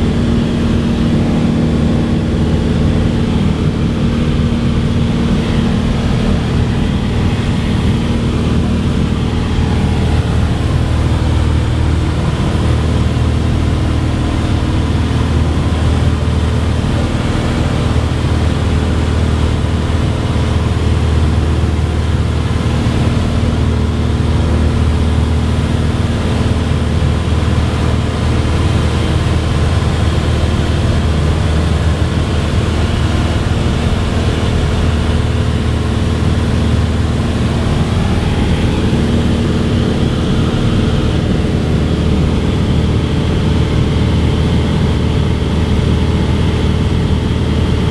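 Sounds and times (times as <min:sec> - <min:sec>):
propeller plane engine drone: 0:00.0 - 0:47.9.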